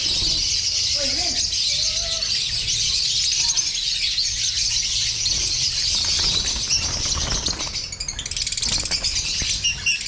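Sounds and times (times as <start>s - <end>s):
flock of lovebirds chattering: 0.0s - 10.0s.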